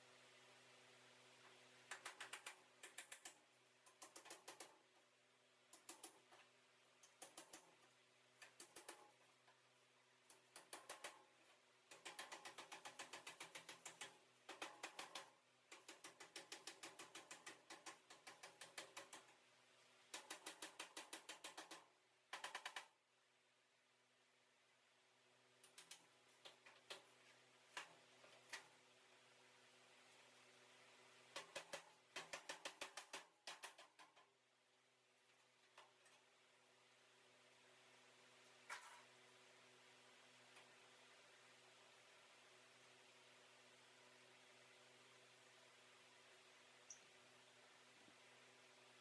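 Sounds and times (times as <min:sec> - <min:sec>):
faint rapid clicking bursts: 0:01.4 - 0:09.6, 0:10.2 - 0:23.1, 0:25.5 - 0:28.8, 0:31.2 - 0:34.5.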